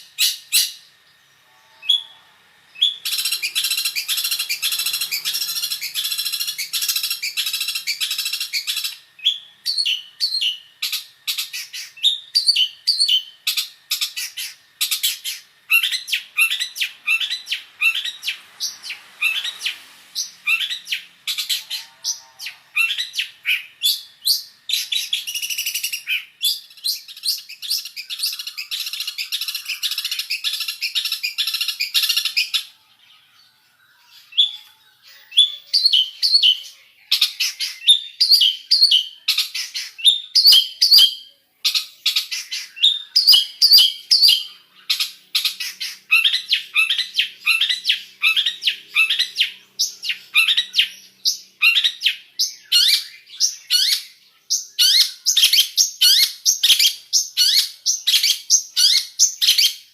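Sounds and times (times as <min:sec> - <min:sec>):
bird singing varied song: 0:00.0 - 0:59.9.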